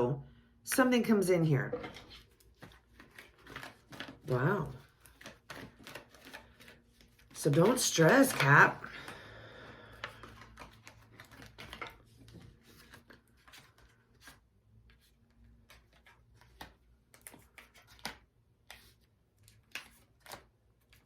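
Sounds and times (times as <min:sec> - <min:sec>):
cards clicking and flicking: 0:04.8 - 0:09.2, 0:19.5 - 0:21.0.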